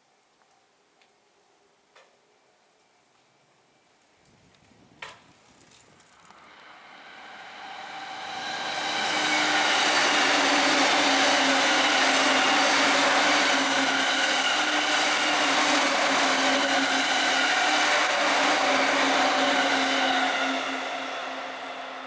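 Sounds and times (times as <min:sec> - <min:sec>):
train wheel and running noise: 0:05.9 - 0:22.0
train motor hum: 0:06.0 - 0:22.0.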